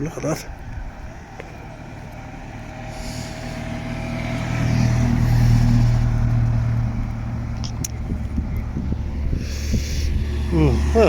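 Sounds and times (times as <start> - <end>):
car driving slowly past: 0.0 - 11.0.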